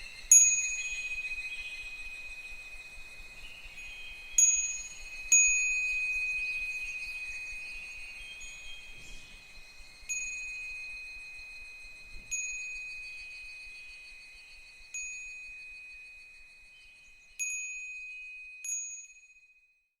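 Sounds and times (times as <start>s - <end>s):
wind chime ringing: 0.0s - 19.7s.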